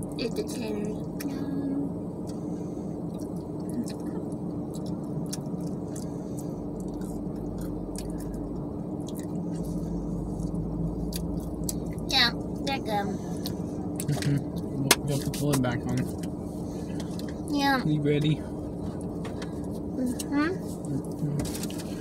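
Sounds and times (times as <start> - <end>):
car cabin hum: 0.0 - 22.0
person chewing food: 3.1 - 12.0, 13.4 - 14.7.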